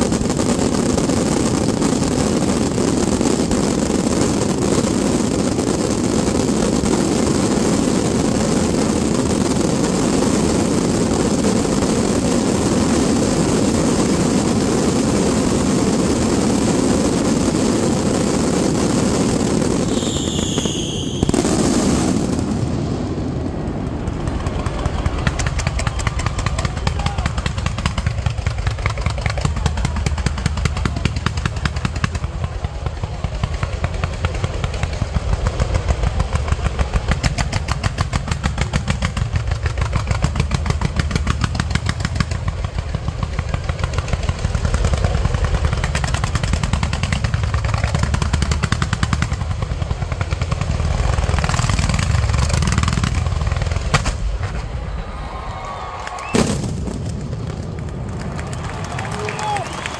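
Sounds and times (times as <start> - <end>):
fireworks bangs: 0.0 - 59.9
fireworks crackling: 0.0 - 59.9.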